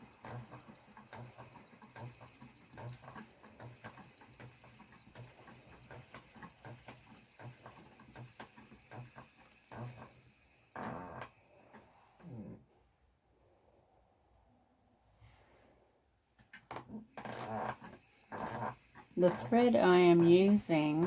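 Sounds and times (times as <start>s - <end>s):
spinning wheel clicks and rattles: 0.0s - 11.8s, 17.2s - 21.0s
spinning wheel treadle thumping: 0.0s - 11.8s, 17.1s - 21.0s.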